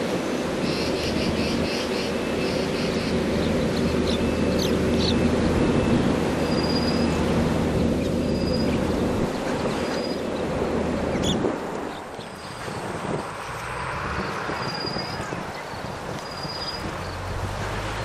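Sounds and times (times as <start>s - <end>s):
bird calling: 0.6s - 10.4s, 11.1s - 12.8s.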